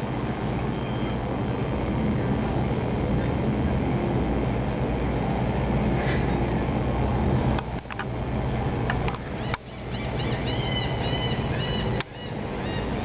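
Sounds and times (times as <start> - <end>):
gulls calling: 9.1 - 13.0.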